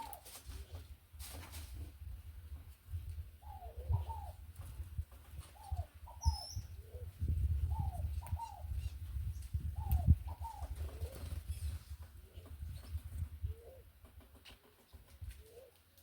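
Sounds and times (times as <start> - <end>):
doves cooing: 0.0 - 0.8, 3.4 - 4.4, 5.4 - 8.9, 9.7 - 11.5, 13.4 - 14.1, 15.3 - 15.9
small birds chirping: 5.3 - 16.0.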